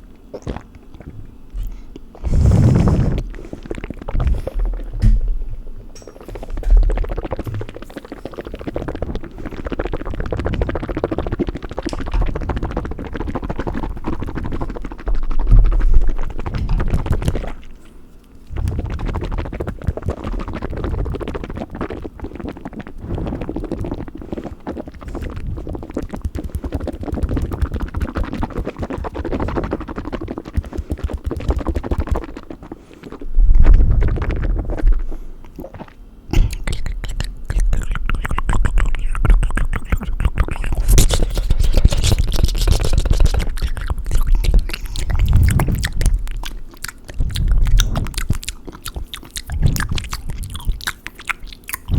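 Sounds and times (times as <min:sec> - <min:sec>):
low rumble on microphone: 0:01.0 - 0:17.7, 0:18.5 - 0:21.2, 0:22.9 - 0:24.4, 0:33.2 - 0:35.4, 0:36.3 - 0:48.4
wet mouth clicks and smacks: 0:05.9 - 0:51.9.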